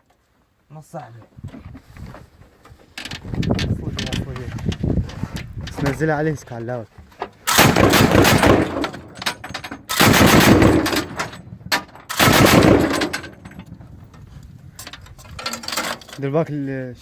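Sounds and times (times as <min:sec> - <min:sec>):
loud rapid mechanical rattling: 0:07.5 - 0:13.6.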